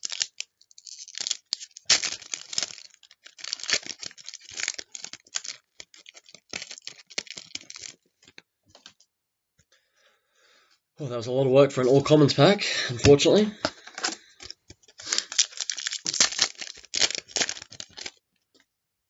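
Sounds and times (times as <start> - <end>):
card pack wrapper tearing and crinkling: 0.0 - 8.4, 13.0 - 18.2.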